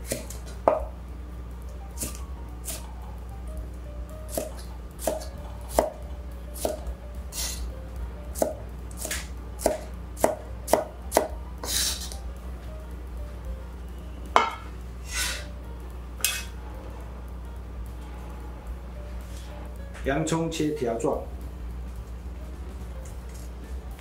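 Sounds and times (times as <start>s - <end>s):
knife scraping cutting board: 7.3s - 7.6s, 11.6s - 12.2s, 15.0s - 15.5s.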